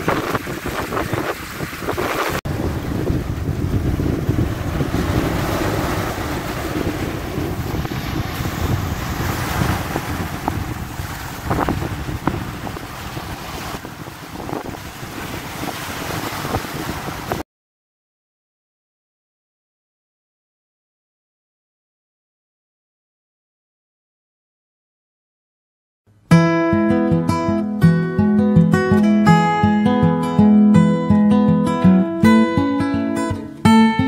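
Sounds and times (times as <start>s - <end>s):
sea water washing: 0.0s - 17.4s
wind buffeting microphone: 0.0s - 17.4s.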